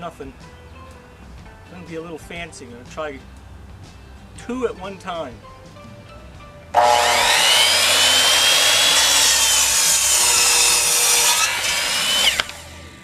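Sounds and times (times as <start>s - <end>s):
power saw cutting wood: 6.8s - 13.0s.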